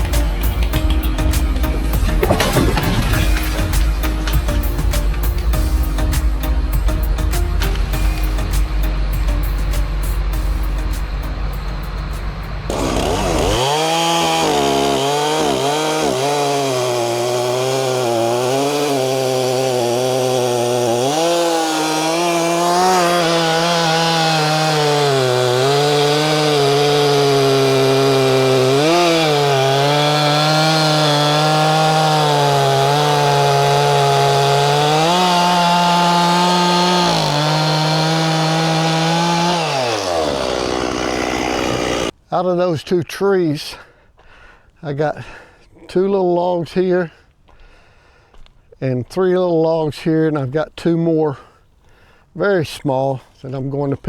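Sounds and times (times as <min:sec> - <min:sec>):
chainsaw cutting wood: 0:00.0 - 0:11.0, 0:11.8 - 0:42.2.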